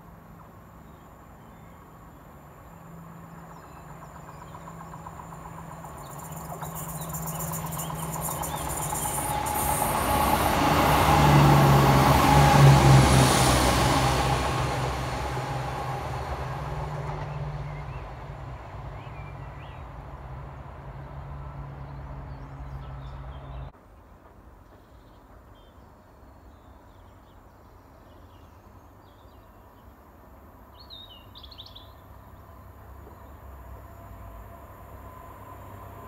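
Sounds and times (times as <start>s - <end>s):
diesel train rumble: 0.2s - 25.6s, 32.2s - 36.0s
birdsong: 3.4s - 9.7s.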